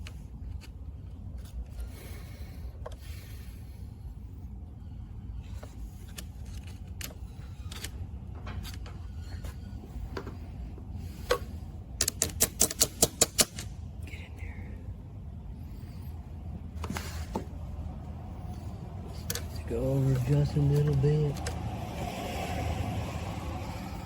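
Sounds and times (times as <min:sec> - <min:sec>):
steady low hum: 0:00.0 - 0:24.0
hand tools clicking on metal: 0:12.0 - 0:13.7.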